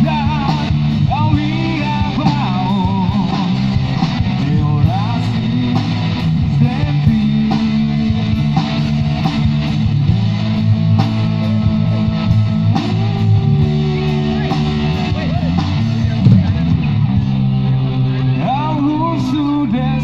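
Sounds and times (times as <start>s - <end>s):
bass guitar: 0.0s - 20.0s
drums keeping a steady beat: 0.0s - 20.0s
electric guitar: 0.0s - 20.0s.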